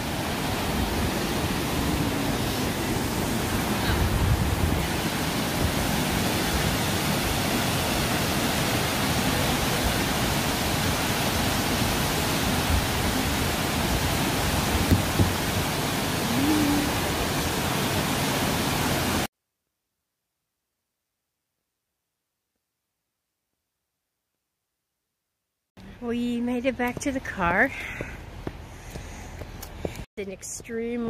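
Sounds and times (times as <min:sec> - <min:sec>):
waterfall rushing: 0:00.0 - 0:19.3.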